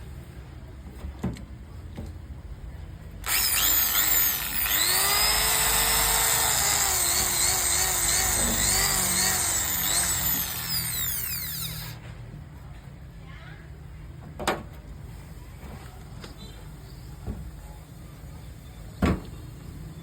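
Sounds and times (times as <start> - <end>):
electric drill motor whining: 3.2 - 12.0.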